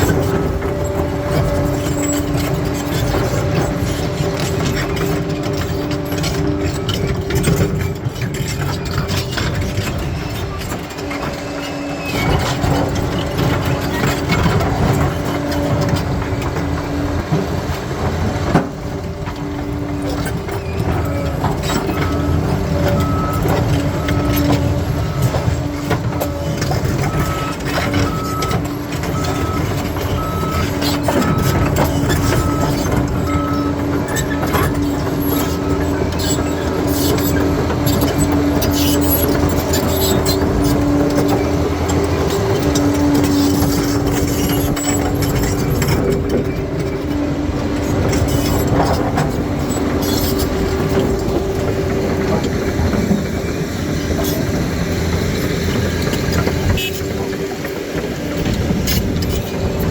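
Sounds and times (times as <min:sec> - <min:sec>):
bulldozer diesel engine: 0:00.0 - 0:59.9
reversing alarm beeps: 0:21.2 - 0:25.5, 0:26.2 - 0:33.8.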